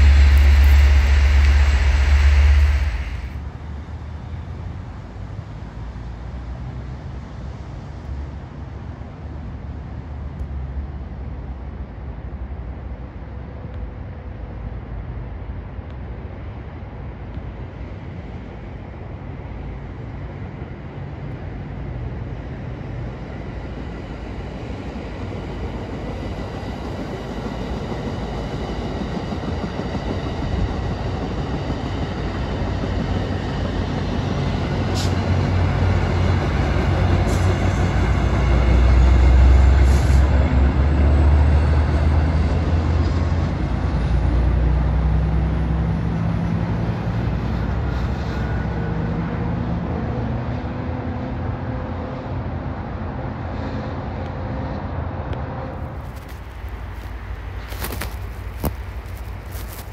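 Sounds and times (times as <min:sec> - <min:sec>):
sharp clicks: 0:00.0 - 0:03.4
wheels on rails: 0:00.0 - 0:03.4
passenger train rumbling past: 0:00.0 - 0:10.1, 0:10.8 - 0:44.7.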